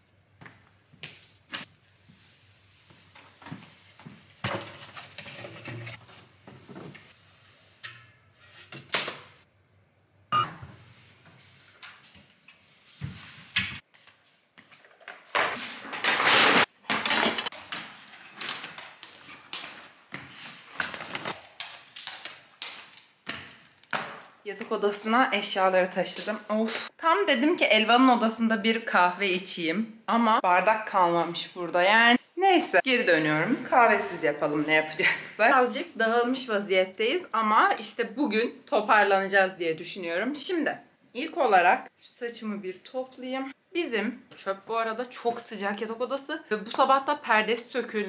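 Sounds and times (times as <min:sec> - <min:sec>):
items being put down: 0:14.8 - 0:19.7
paper bags rustling: 0:15.7 - 0:23.0.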